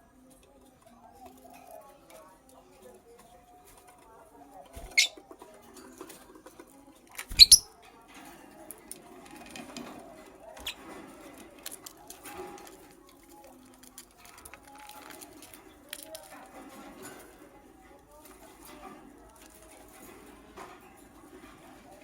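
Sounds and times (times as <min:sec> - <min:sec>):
bird scratching and tapping cage: 0:01.2 - 0:22.0.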